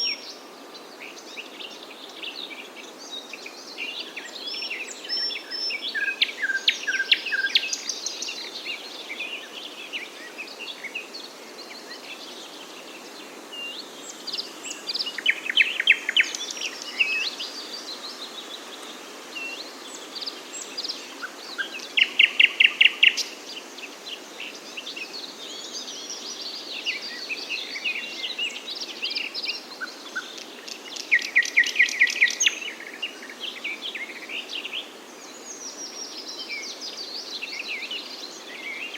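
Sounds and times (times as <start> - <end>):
songbirds chirping and singing: 0.0 - 38.9
steady background hiss: 0.0 - 38.9.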